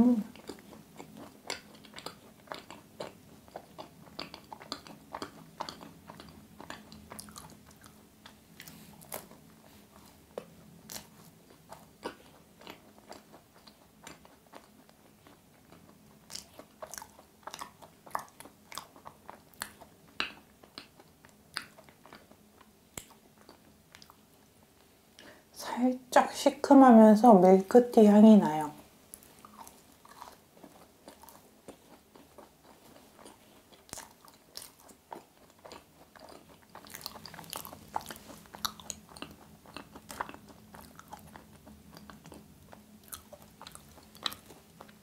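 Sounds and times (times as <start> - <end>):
person chewing crunchy macaron: 0.2 - 24.9, 29.1 - 45.0.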